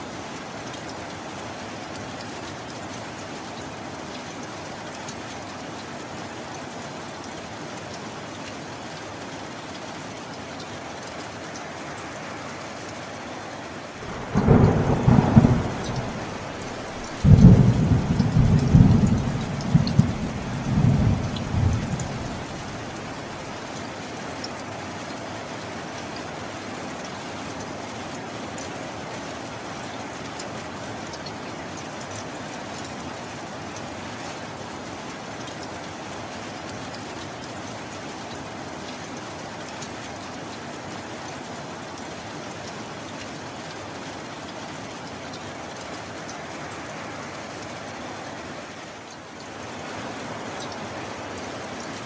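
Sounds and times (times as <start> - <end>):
steady rain: 0.0 - 52.0
thunder rumbling: 14.0 - 23.2
raindrops ticking: 14.0 - 26.3, 29.9 - 33.2.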